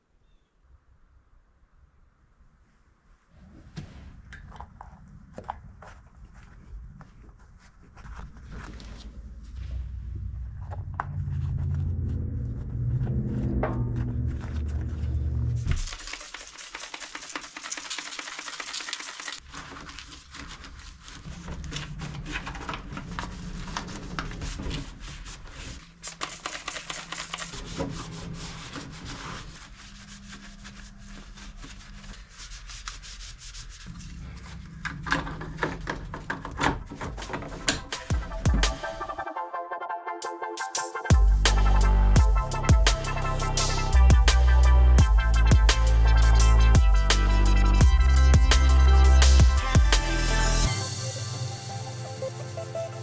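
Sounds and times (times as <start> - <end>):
low hum: 8.4 - 15.9, 41.1 - 53.0
scrubbing and polishing: 15.7 - 21.8, 23.6 - 34.4.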